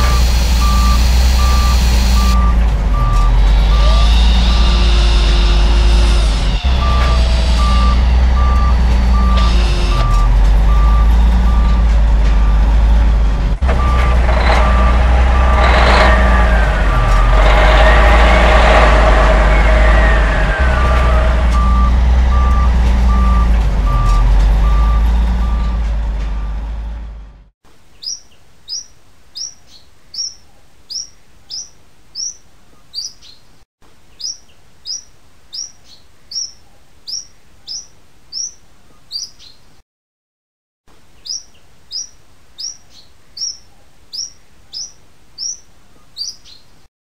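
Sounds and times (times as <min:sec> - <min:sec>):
reversing beeps: 0:00.0 - 0:04.1, 0:06.7 - 0:12.6, 0:13.8 - 0:17.4, 0:20.7 - 0:25.8
heavy truck rumble: 0:00.0 - 0:27.5
small bird chirping: 0:27.9 - 0:33.5, 0:34.1 - 0:39.6, 0:41.2 - 0:46.7.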